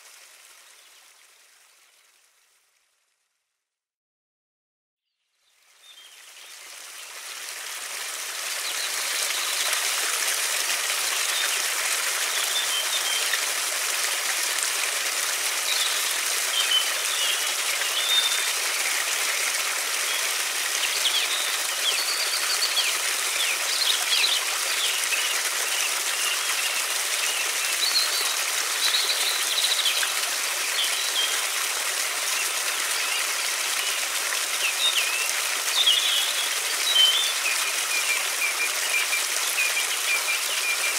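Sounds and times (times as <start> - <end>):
river flowing: 5.6 - 40.9
small birds chirping: 34.6 - 40.9.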